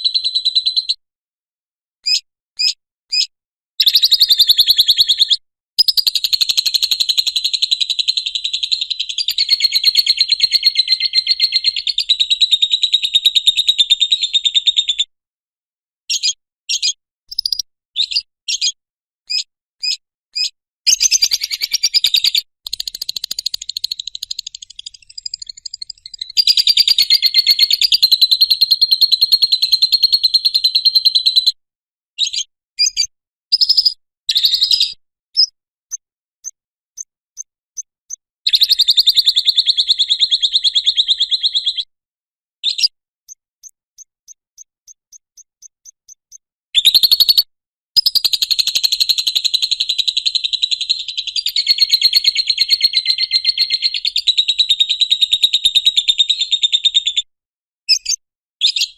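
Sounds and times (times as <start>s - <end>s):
bird single chirps: 2.0s - 7.9s, 16.1s - 29.3s, 32.2s - 41.9s, 42.6s - 48.6s, 57.9s - 58.9s
lovebird chattering trills: 20.9s - 28.4s.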